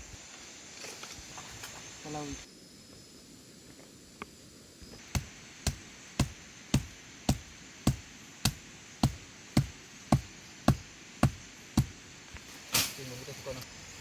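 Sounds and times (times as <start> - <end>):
steady chopping strokes: 4.9 - 13.0.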